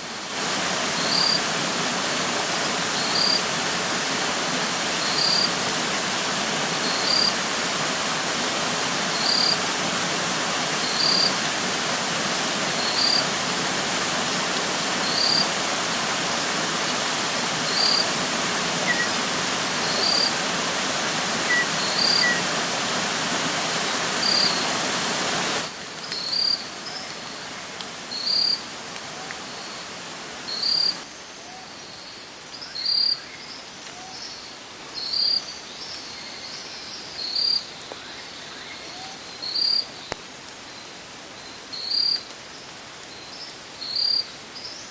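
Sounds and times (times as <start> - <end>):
creek water rushing: 0.0 - 31.1.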